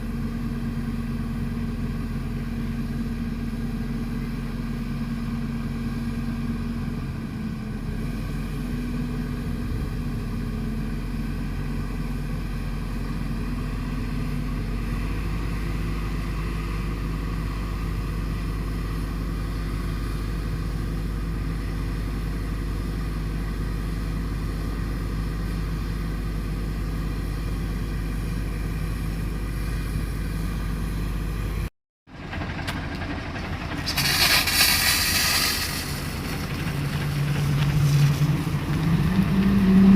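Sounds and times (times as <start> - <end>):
fire engine idling: 0.0 - 39.4
loud hiss: 33.9 - 36.4.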